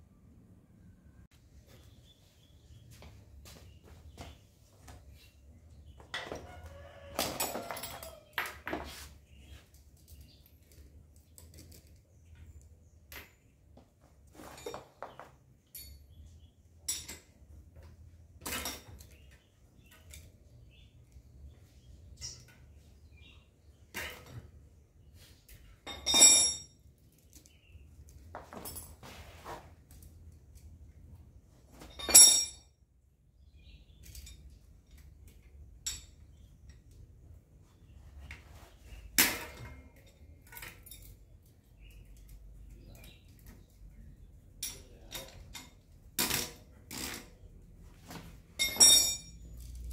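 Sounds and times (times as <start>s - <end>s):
metal tools clinking and knocking: 6.0s - 8.9s, 14.3s - 20.4s, 22.1s - 22.8s, 23.9s - 24.6s, 25.7s - 27.6s, 28.4s - 29.2s, 31.8s - 32.7s, 33.9s - 37.0s, 39.2s - 41.5s, 44.6s - 47.4s, 48.1s - 49.9s
metal parts clinking: 31.8s - 32.6s, 48.6s - 49.9s.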